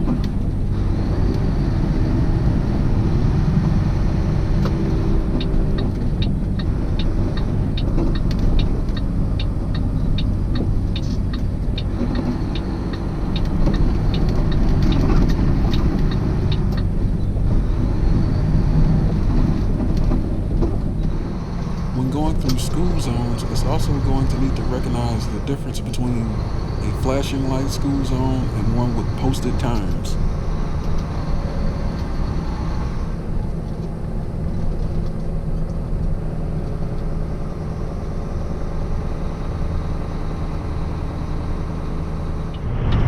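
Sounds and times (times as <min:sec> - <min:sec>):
road noise: 0:00.0 - 0:35.1
truck engine drone: 0:21.1 - 0:30.5.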